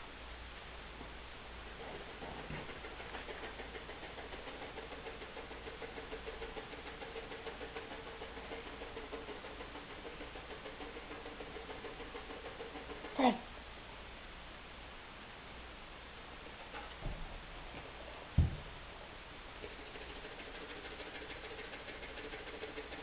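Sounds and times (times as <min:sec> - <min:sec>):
dog panting: 0:01.8 - 0:13.2, 0:19.6 - 0:23.0.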